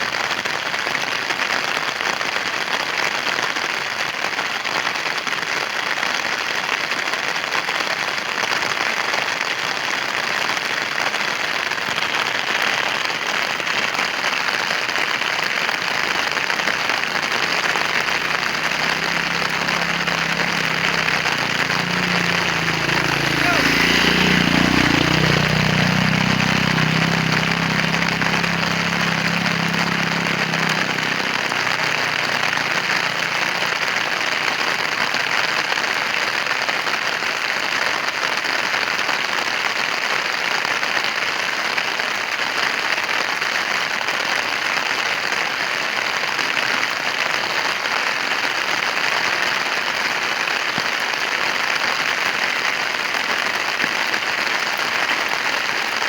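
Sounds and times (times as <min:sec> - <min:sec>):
heavy rain: 0:00.0 - 0:56.0
low engine hum: 0:15.7 - 0:34.3.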